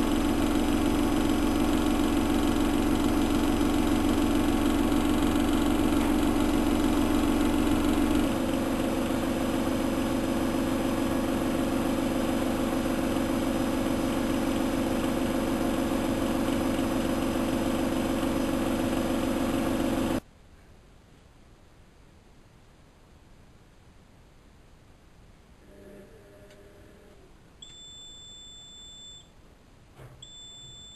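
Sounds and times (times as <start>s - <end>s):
washing machine motor hum: 0.0s - 20.2s.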